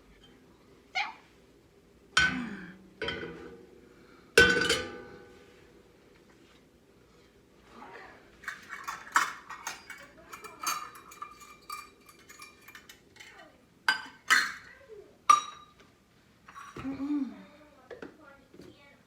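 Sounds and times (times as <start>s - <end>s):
kitchenware clinking and clattering: 2.2s - 3.8s, 4.4s - 5.5s, 8.3s - 15.8s, 16.4s - 17.0s.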